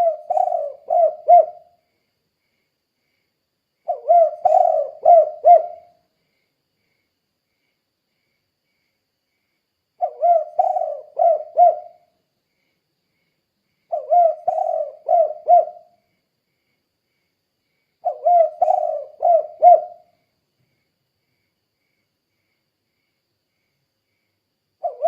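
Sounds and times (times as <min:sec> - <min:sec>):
dove cooing: 0:00.0 - 0:01.8, 0:03.9 - 0:06.0, 0:10.0 - 0:12.1, 0:13.9 - 0:16.0, 0:18.0 - 0:20.1, 0:24.8 - 0:25.0.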